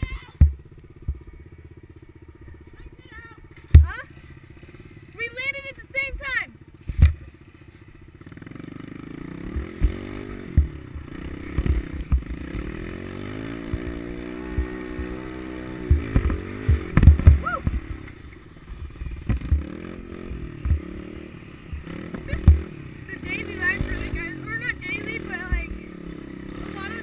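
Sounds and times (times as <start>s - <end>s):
pit bike engine revving: 0.0s - 27.0s
heavy low thumps: 13.6s - 18.0s.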